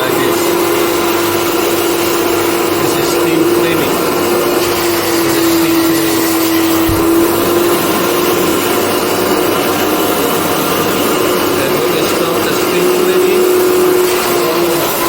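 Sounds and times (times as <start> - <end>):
carpet cleaning machine humming: 0.0 - 15.0
low knock: 6.8 - 7.7.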